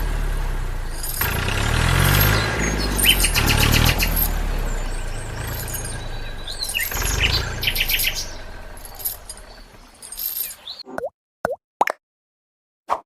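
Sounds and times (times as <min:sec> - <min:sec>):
low engine rumble with clicking: 0:00.0 - 0:10.5
birds chirping: 0:00.7 - 0:10.9.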